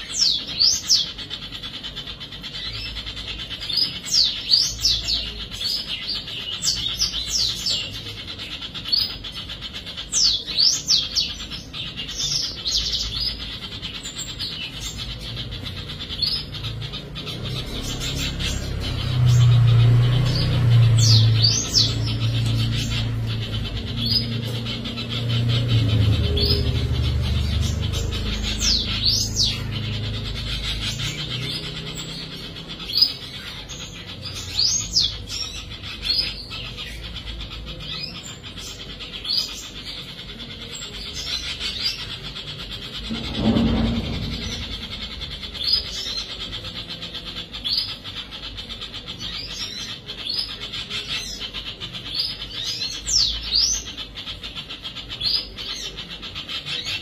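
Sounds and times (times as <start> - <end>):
birds chirping: 0.0 - 57.0
low rumble: 17.6 - 33.3, 42.8 - 46.3
brief low whoosh: 43.0 - 45.8.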